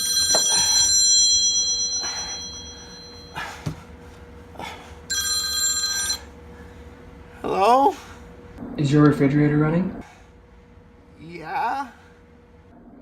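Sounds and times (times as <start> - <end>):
telephone ringing: 0.0 - 3.3, 5.1 - 6.4.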